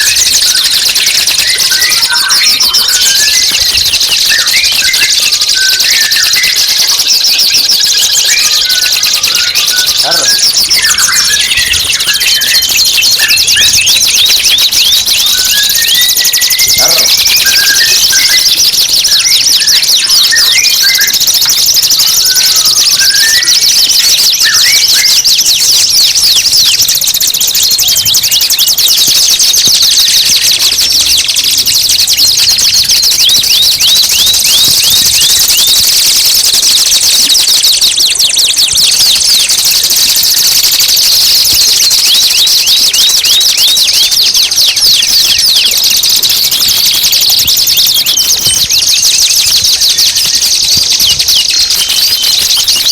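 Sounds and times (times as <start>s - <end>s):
lower bird chirps: 0.0s - 52.9s
songbird trilling: 0.0s - 52.9s.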